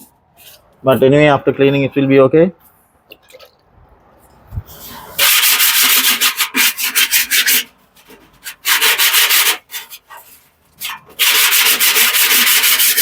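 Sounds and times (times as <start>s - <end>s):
scrubbing metal drum: 5.2s - 13.0s.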